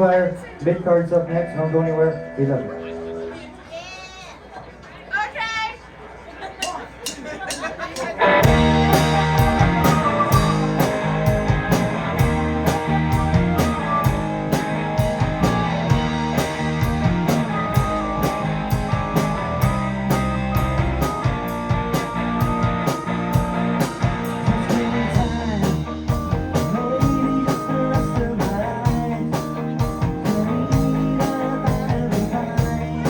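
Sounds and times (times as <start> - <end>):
guitar: 0.0 - 3.7, 8.0 - 33.0
keyboards: 0.0 - 3.7, 6.6 - 33.0
drums with cymbal beat: 6.6 - 33.0
electric bass: 8.2 - 33.0.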